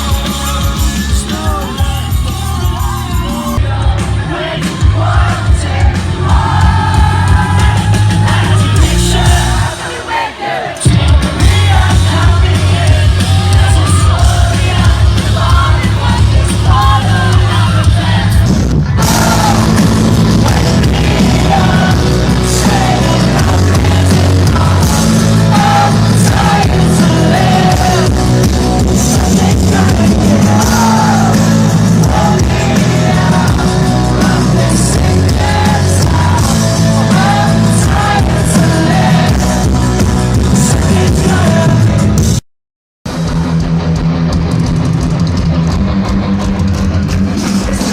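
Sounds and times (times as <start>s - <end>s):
rock music with singer: 0.0s - 42.4s, 43.1s - 47.9s.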